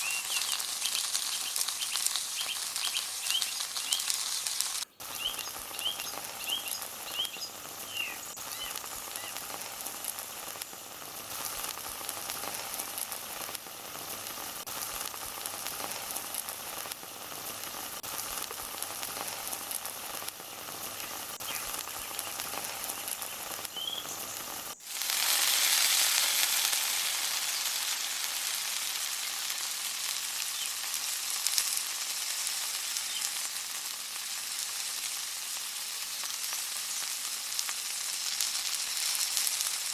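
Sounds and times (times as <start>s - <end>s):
bird chirps: 0.0s - 4.2s, 4.9s - 9.4s, 20.4s - 24.5s, 33.0s - 33.4s
food frying in oil: 0.0s - 39.9s.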